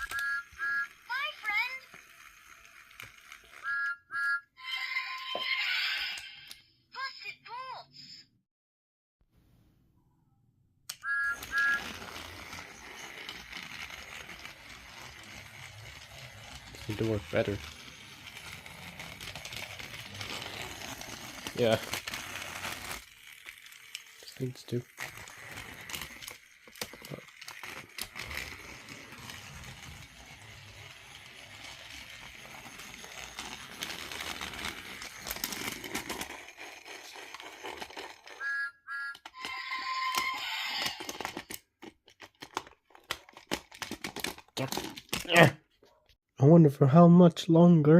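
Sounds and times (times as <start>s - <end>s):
small battery motor running: 0.0s - 3.7s, 11.3s - 38.4s
toy train wheels clicking: 0.0s - 4.0s, 11.1s - 38.4s, 39.2s - 42.7s
toy train whistle toots: 38.4s - 41.0s.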